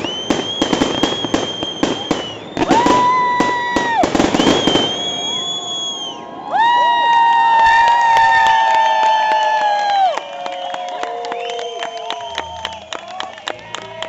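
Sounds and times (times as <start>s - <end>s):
fireworks crackling: 0.0s - 6.2s
shrill firework whistles: 0.0s - 6.9s.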